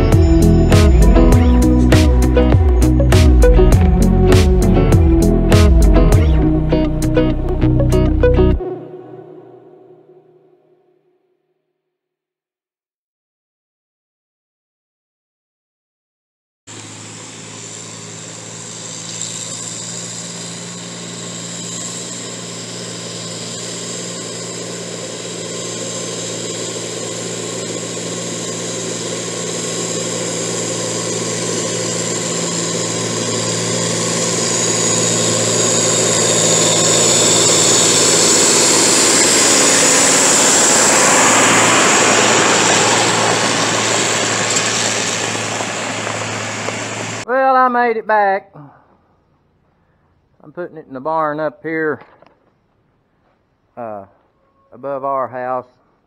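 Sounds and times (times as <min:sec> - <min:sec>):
vehicle engine under load: 0:16.7 - 0:47.2.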